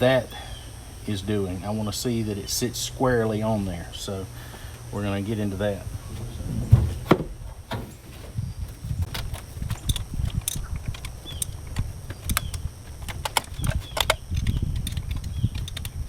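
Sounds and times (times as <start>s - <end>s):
wind buffeting microphone: 5.6s - 16.0s.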